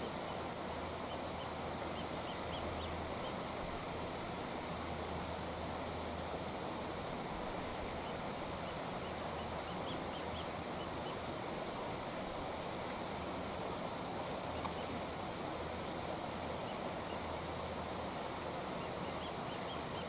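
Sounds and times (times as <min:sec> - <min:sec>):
faint high chirps: 0:19.0 - 0:20.0.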